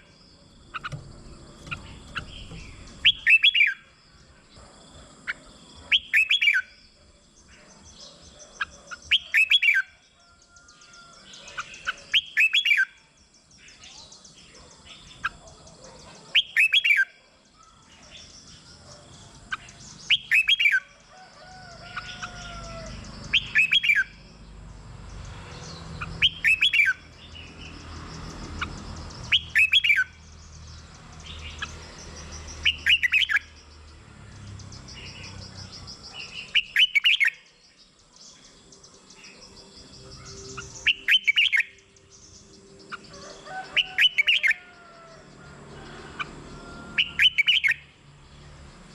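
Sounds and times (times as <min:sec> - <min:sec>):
faint bird chirps: 0:00.0 - 0:24.5, 0:28.2 - 0:45.2
bird whistled song phrases: 0:03.0 - 0:03.8, 0:08.6 - 0:09.9, 0:11.8 - 0:13.0, 0:23.4 - 0:24.1, 0:26.2 - 0:27.0, 0:29.3 - 0:30.1, 0:36.2 - 0:37.4, 0:40.2 - 0:41.8, 0:47.0 - 0:47.8.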